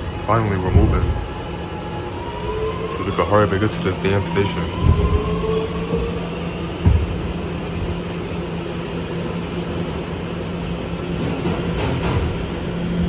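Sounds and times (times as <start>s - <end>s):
subway car hum and rumble: 0.0s - 13.0s
low thump: 0.7s - 1.2s, 6.8s - 7.4s.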